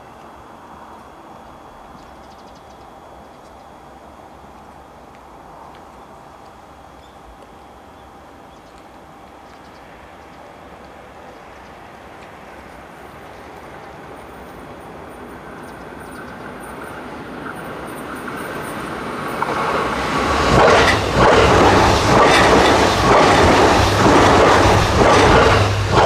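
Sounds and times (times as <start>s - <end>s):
electric train passing: 0.0s - 26.0s
wheels clattering over rail joints: 20.4s - 26.0s.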